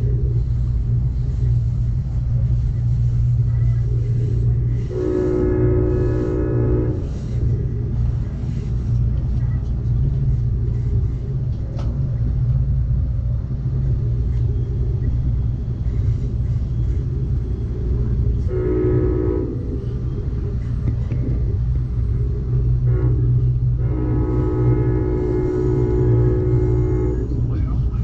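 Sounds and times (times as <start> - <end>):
passenger train rumbling: 0.0 - 28.0
train horn blast: 4.7 - 7.5, 18.4 - 20.0, 22.0 - 27.7.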